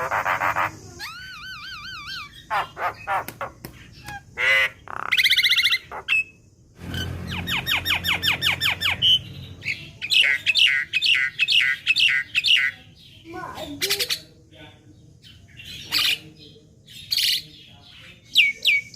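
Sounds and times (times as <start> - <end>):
myna calling: 0.0 - 12.8.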